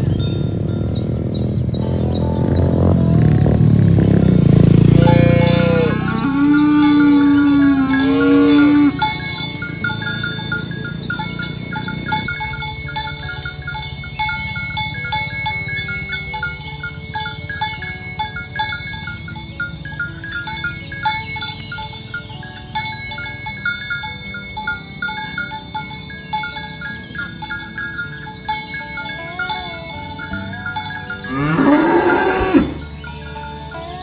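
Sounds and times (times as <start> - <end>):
bells chiming in quick strokes: 0.0 - 34.0
cow mooing: 1.8 - 10.6, 29.0 - 33.1.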